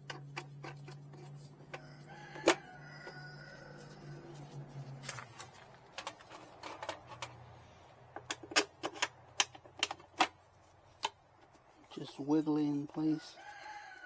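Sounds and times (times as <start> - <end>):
small hard parts clicking: 5.1 - 11.7.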